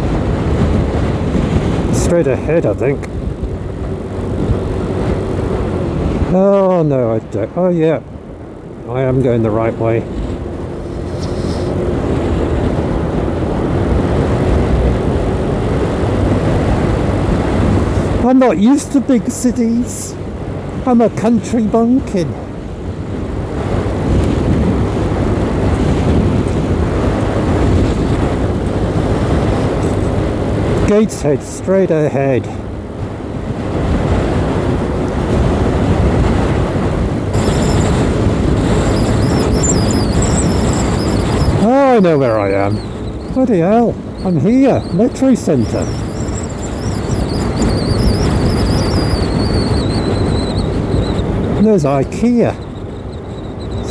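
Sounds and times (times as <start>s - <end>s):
wind rush and road noise: 0.0s - 53.9s
motorbike engine: 32.5s - 51.6s.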